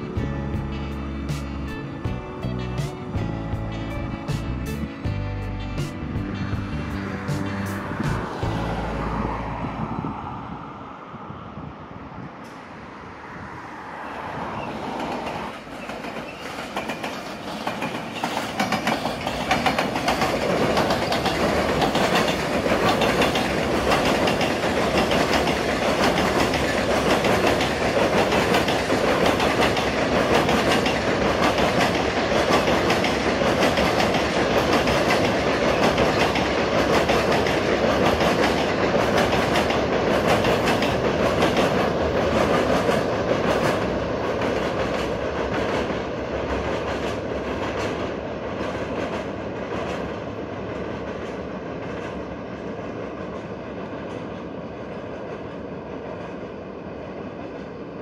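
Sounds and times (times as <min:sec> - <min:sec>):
train wheels clattering on rails: 0:14.8 - 0:57.8.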